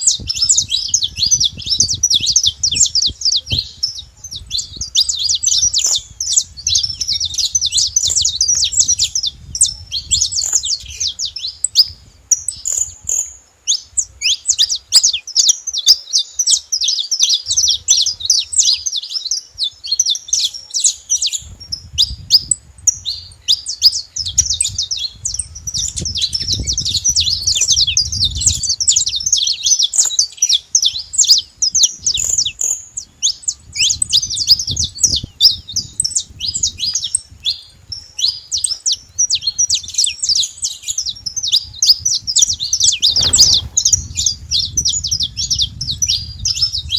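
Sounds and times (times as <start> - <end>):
finch singing high chirps: 0.0 - 46.9
low rumble: 42.6 - 46.2.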